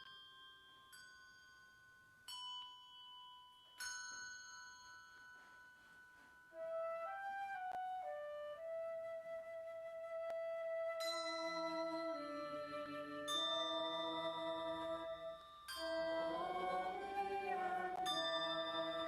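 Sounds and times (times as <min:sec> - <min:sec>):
flute-like slow melody: 0:06.5 - 0:19.0
struck bell-like notes: 0:11.0 - 0:19.0.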